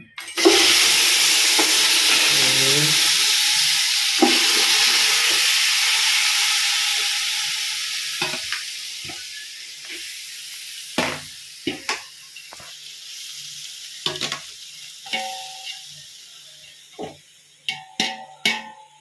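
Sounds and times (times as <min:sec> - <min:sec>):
chicken sizzling in hot oil: 0:00.3 - 0:19.0
spatula clinking on metal pot: 0:15.1 - 0:15.8, 0:17.7 - 0:18.9.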